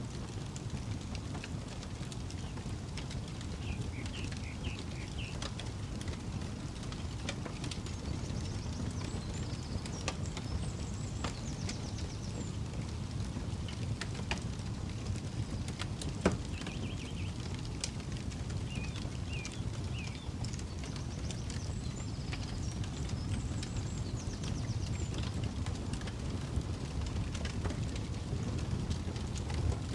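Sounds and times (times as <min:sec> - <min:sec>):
campfire crackling: 0:00.0 - 0:29.9
fire pops: 0:00.0 - 0:29.9.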